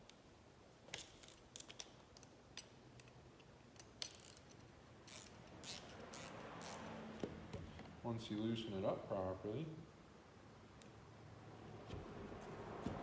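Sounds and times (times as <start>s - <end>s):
metal tool parts clicking and clattering: 1.0s - 4.7s.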